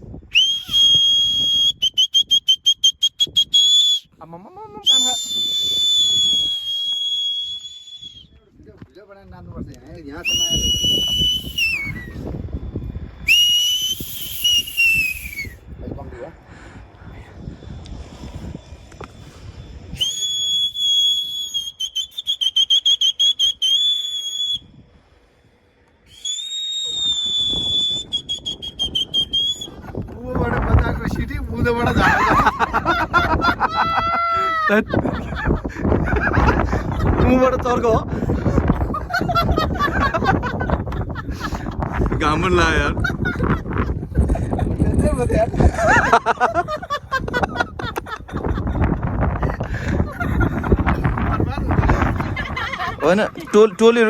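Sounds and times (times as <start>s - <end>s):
shrill whistle blasts: 0.2s - 4.1s, 4.8s - 8.4s, 10.1s - 15.8s, 17.4s - 24.9s, 26.0s - 29.9s.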